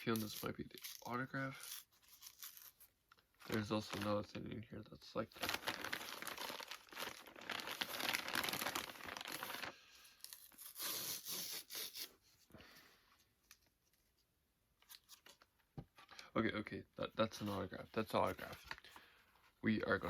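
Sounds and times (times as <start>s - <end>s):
packaging torn and crinkled: 0.0s - 4.3s, 5.3s - 12.1s.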